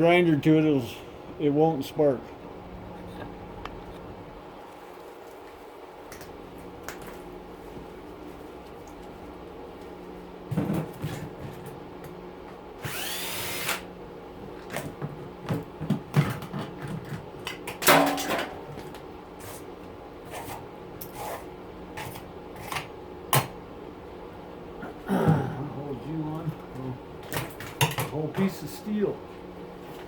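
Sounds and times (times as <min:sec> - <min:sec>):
steady low hum: 0:00.0 - 0:17.5, 0:18.4 - 0:30.0
handheld power tool burst: 0:12.9 - 0:13.9.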